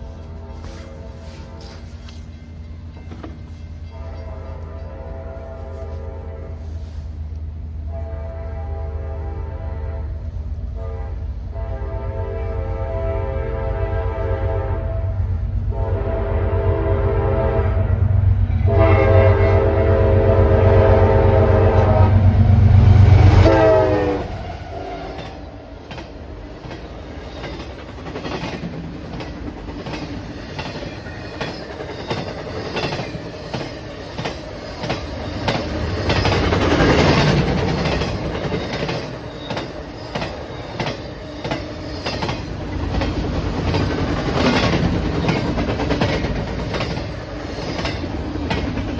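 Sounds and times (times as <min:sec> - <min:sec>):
locomotive horn: 0:00.0 - 0:02.4, 0:03.7 - 0:25.6
train wheels clacking over rail joints: 0:01.6 - 0:04.9, 0:25.1 - 0:48.9.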